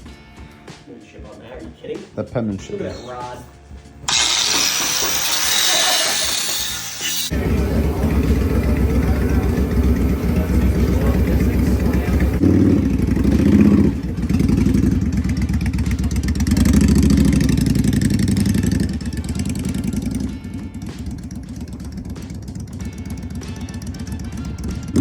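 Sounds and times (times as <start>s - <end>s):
motorcycle engine revving: 4.1s - 25.0s.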